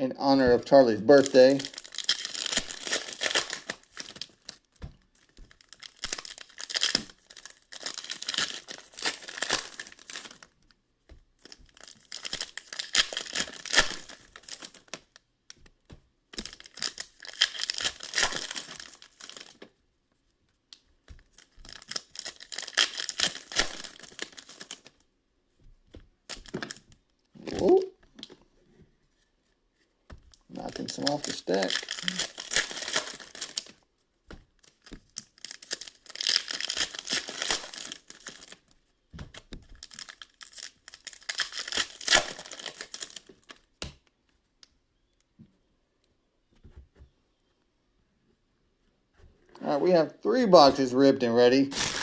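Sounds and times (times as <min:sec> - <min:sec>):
foil wrappers tearing and crinkling: 0:00.7 - 0:10.6, 0:11.4 - 0:15.2, 0:16.4 - 0:19.6, 0:21.2 - 0:25.0, 0:30.5 - 0:33.8, 0:34.6 - 0:43.7, 0:51.7 - 0:52.0.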